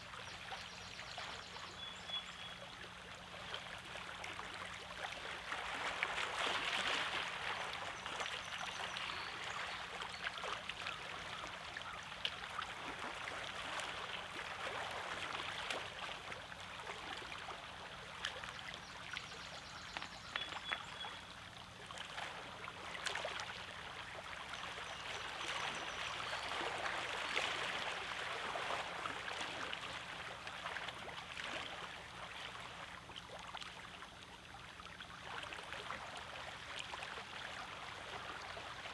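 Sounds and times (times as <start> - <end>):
lake waves lapping on rocky shore: 3.3 - 21.0, 21.7 - 34.0.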